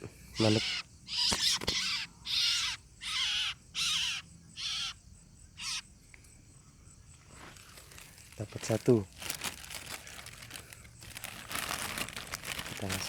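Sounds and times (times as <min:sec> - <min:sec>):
quail distress squawks: 0:00.3 - 0:05.0, 0:05.6 - 0:05.9.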